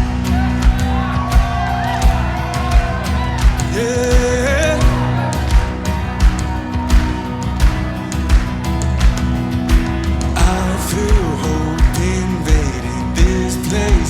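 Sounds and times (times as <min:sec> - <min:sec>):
steady drum beat: 0:00.0 - 0:14.0
worship band music: 0:00.0 - 0:14.0
person singing wordless vocals: 0:03.4 - 0:06.2, 0:10.4 - 0:14.0.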